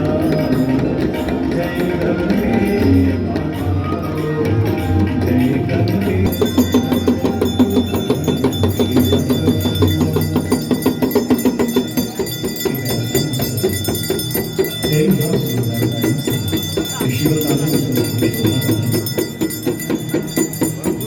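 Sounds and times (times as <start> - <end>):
bells ringing rapidly: 0.0 - 21.0
devotional music: 0.0 - 21.0.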